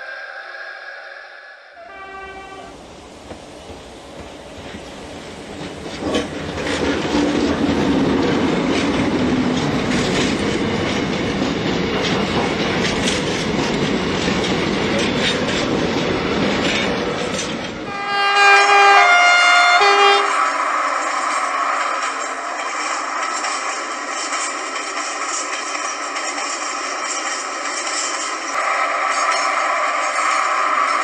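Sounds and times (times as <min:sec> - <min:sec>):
train rumbling past: 0:00.0 - 0:31.0
two-tone locomotive horn: 0:01.8 - 0:02.8, 0:17.9 - 0:20.9
wheels clattering over rail joints: 0:02.7 - 0:17.9.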